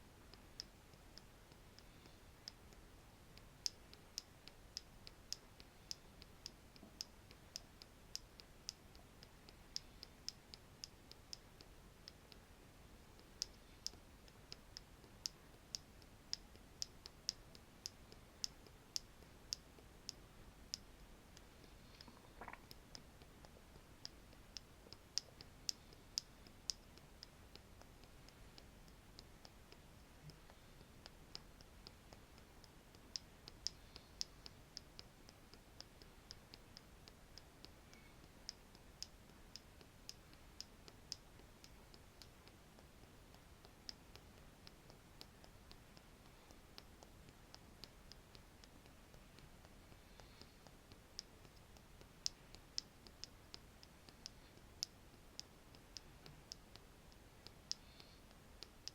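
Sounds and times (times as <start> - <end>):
wooden stick tapping: 21.8 - 22.7.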